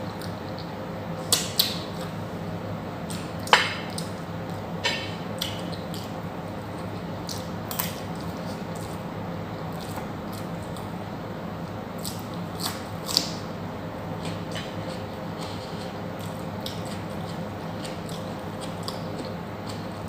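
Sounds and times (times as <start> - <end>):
steady low hum: 0.0 - 20.0
person chewing food: 9.7 - 10.9, 12.0 - 13.4, 14.1 - 20.0.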